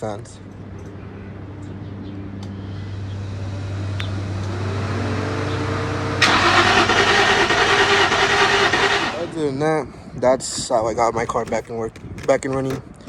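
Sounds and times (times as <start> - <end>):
car starting: 4.4 - 9.6.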